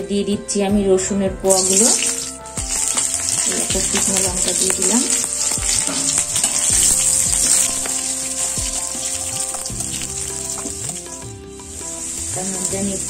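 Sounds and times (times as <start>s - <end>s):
background music: 0.0s - 13.0s
metal spatula stirring: 1.5s - 11.2s
garlic sizzling in hot oil: 1.5s - 13.0s.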